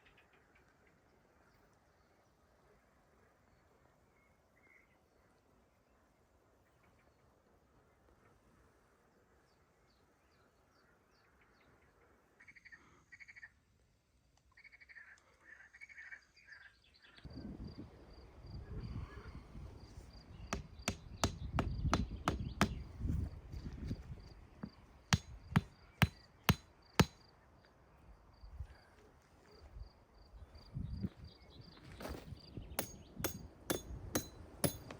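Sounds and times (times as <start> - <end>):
rapid sharp knocks: 20.6 - 22.8, 25.1 - 27.2, 32.8 - 34.9.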